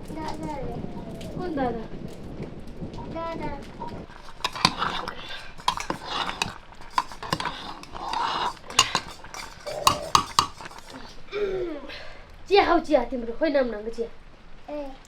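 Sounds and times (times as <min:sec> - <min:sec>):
dishes and utensils clattering: 0:03.8 - 0:11.2.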